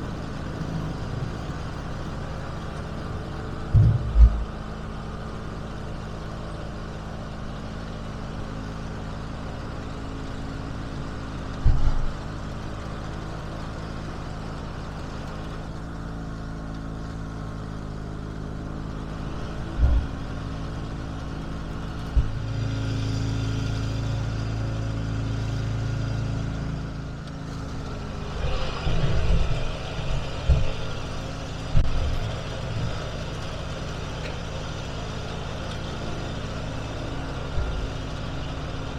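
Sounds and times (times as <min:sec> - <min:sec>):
tractor engine idling: 0:00.0 - 0:38.9
short knocks and thumps: 0:03.7 - 0:04.6.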